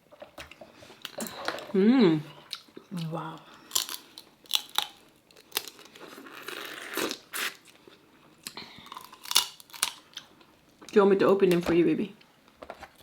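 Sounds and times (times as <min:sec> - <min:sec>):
shells cracking and crunching: 0:03.4 - 0:06.5, 0:08.8 - 0:10.3.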